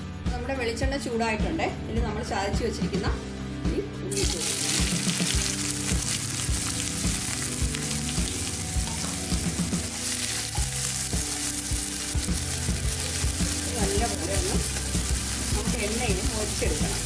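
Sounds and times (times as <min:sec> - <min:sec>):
shallots sizzling in oil: 0:04.1 - 0:17.0
wooden spatula stirring: 0:08.8 - 0:17.0.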